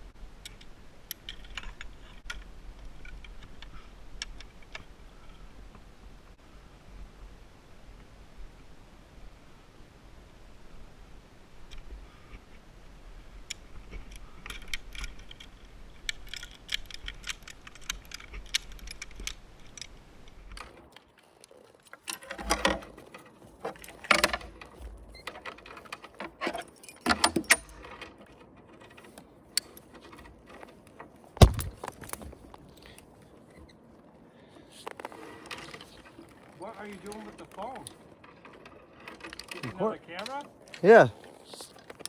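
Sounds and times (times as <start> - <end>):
sharp knock: 31.4 - 31.8.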